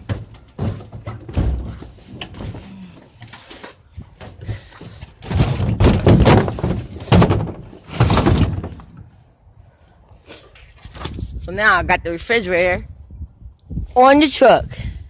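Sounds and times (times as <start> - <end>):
heavy load thudding and scraping: 0.0 - 9.2.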